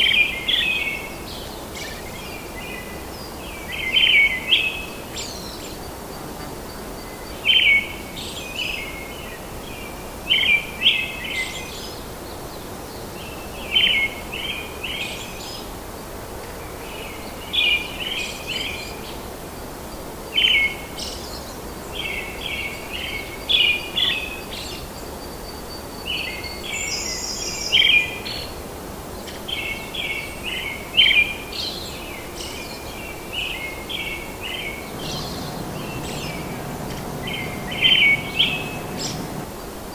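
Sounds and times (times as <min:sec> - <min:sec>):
steady background hiss: 0:34.2 - 0:39.9
birds chirping: 0:34.6 - 0:39.7.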